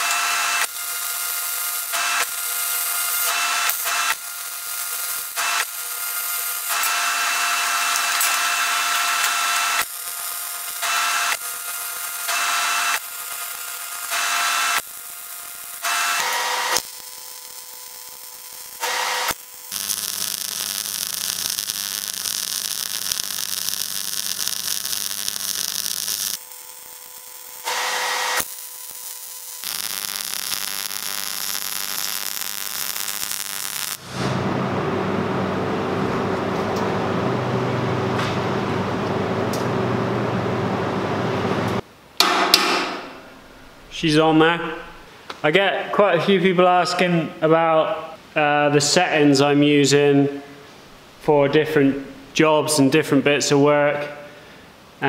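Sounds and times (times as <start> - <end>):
welding arc crackling and hissing: 0.0 - 34.6
low hum: 34.0 - 41.8.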